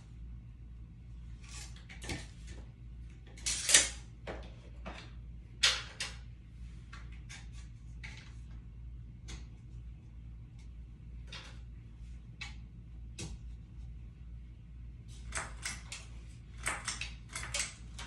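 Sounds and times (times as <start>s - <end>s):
low steady hum: 0.0s - 18.0s
small clicks and scrapes: 15.1s - 18.0s.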